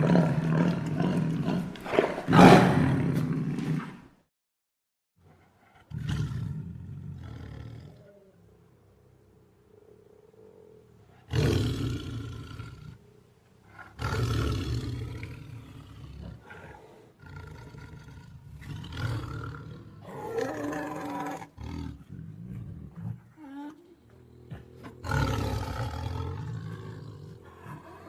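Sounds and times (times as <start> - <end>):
tiger roaring: 0.0 - 4.0, 5.8 - 28.0.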